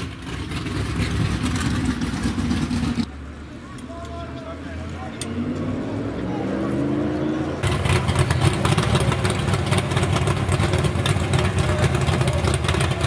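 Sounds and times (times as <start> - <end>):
car engine idling roughly: 7.6 - 13.0.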